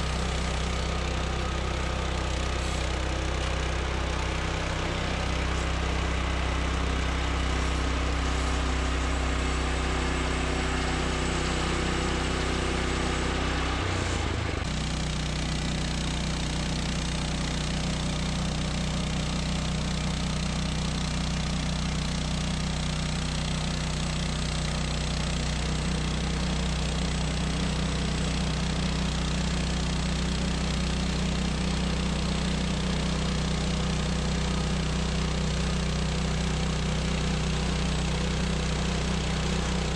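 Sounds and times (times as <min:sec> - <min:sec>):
bandsaw sawmill cutting wood: 0:00.0 - 0:39.9.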